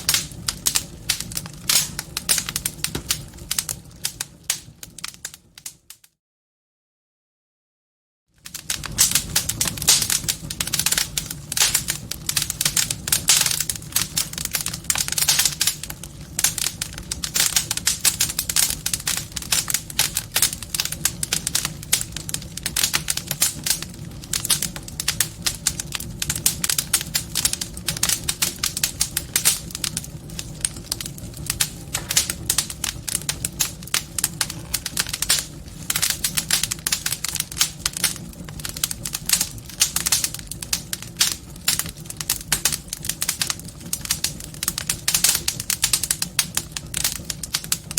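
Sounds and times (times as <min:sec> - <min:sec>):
wood fire crackling: 0:00.0 - 0:06.0, 0:08.3 - 0:47.9.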